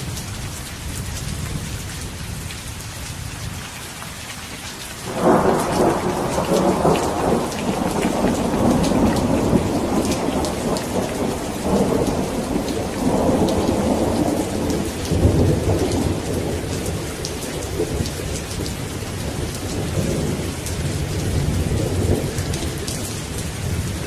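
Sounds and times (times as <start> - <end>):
heavy rain: 0.0 - 24.0
thunder rumbling: 5.1 - 24.0.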